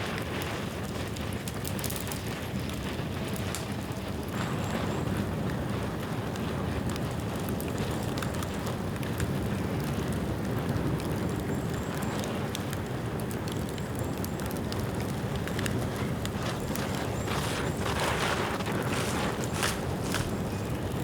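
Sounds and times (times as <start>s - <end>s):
bamboo crackles and snaps: 1.4s - 2.4s, 13.5s - 21.0s
rush of flame: 15.0s - 21.0s.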